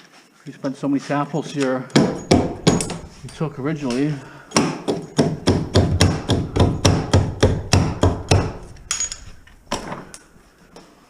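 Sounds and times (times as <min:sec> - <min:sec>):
rapid hammer blows: 0:02.0 - 0:08.9.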